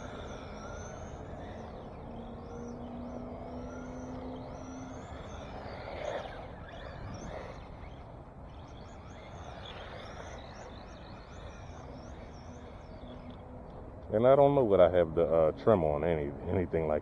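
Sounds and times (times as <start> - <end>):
faint steady hum: 0.0 - 17.0
low background noise: 0.0 - 17.0
songbirds chirping: 0.0 - 17.0.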